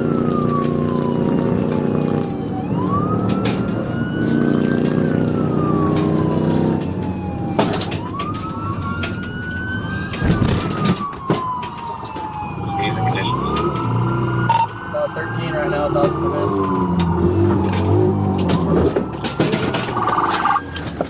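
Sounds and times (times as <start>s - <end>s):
police siren wailing: 0.0s - 21.0s.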